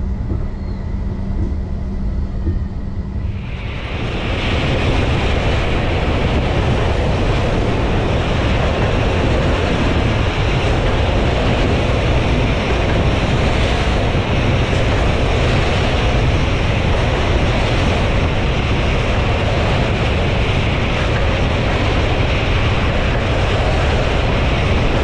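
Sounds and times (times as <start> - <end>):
train wheels rumbling: 0.0 - 25.0
wind rushing over microphone: 0.0 - 25.0.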